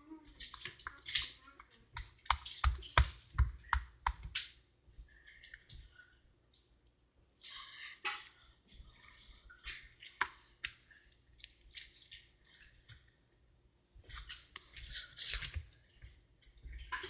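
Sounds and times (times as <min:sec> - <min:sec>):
slime squelching and clicking: 0:00.5 - 0:04.5.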